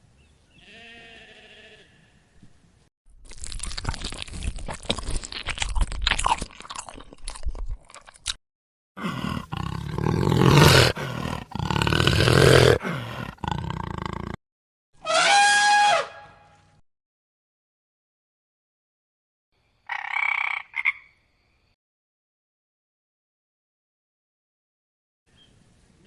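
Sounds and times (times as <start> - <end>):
dense crackling and crunching: 3.2 - 8.4
deep rough animal call: 9.0 - 14.4.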